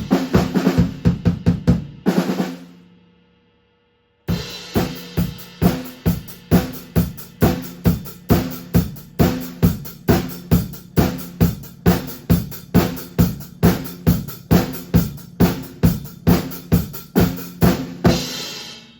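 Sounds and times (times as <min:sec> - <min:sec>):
bass drum and snare beat: 0:00.0 - 0:02.8, 0:04.3 - 0:18.7
hi-hat and cymbals: 0:04.3 - 0:18.9.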